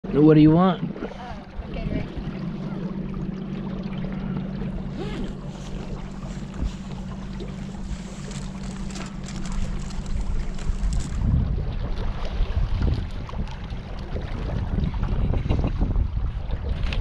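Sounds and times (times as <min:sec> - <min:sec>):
wind on microphone: 0:00.8 - 0:03.2, 0:04.0 - 0:17.0
motor running: 0:01.2 - 0:11.3.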